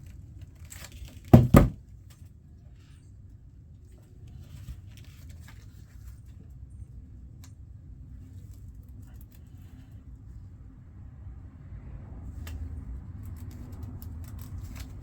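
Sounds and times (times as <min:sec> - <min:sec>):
loud sharp knocks: 0:01.4 - 0:01.8.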